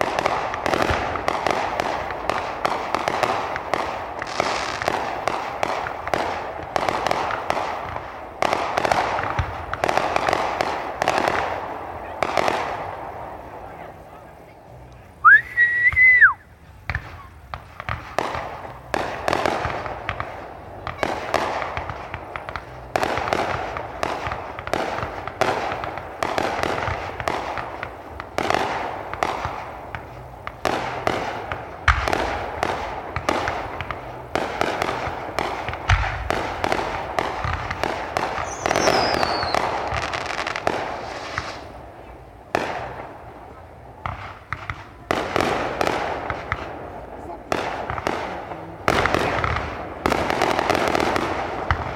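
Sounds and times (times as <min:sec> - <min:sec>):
deep fireworks booms: 0:00.0 - 0:51.9
fireworks crackling: 0:00.0 - 0:51.9
falling firework whistle: 0:15.2 - 0:16.5, 0:38.4 - 0:41.7
fireworks shells bursting: 0:16.8 - 0:43.2.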